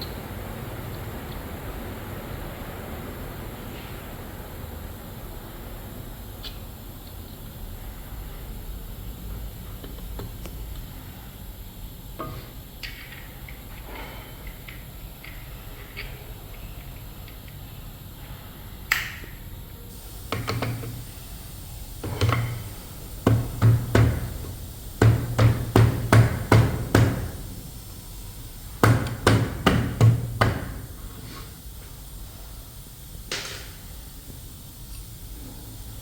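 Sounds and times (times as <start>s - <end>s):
hammer knocking: 20.1s - 21.3s, 22.0s - 27.6s, 28.8s - 31.0s.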